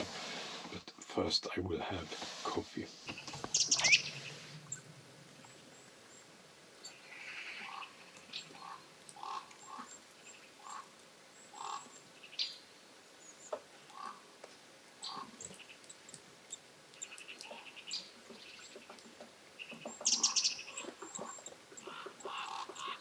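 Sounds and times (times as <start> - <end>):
high bird chirps: 3.1 - 13.6, 19.6 - 23.0
birds calling short notes: 3.1 - 14.3, 15.0 - 23.0
noisy bird call: 3.1 - 14.4, 15.0 - 23.0.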